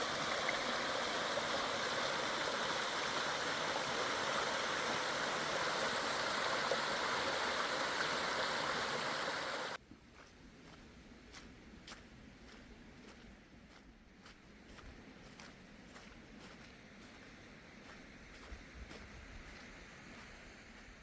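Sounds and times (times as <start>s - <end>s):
stream water rushing over rocks: 0.0s - 9.8s.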